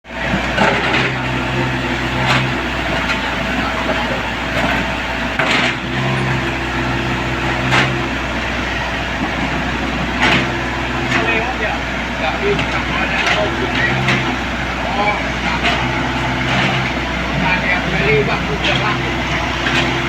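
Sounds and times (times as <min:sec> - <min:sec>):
excavator diesel engine running: 0:00.1 - 0:20.0
humming tone: 0:00.6 - 0:10.1.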